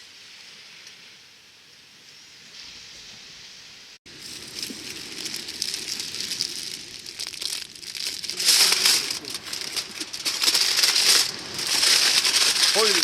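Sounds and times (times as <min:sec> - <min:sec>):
aluminium foil crinkling: 0:04.2 - 0:13.0.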